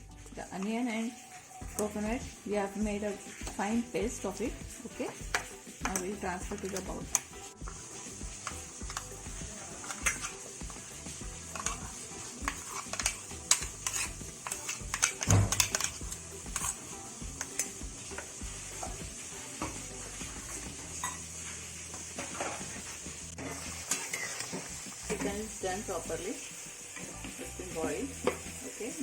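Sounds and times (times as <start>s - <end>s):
sizzling hiss from pot: 0.0s - 29.0s
metal spoon scraping cookware: 9.8s - 10.5s, 11.4s - 19.0s, 23.6s - 25.3s.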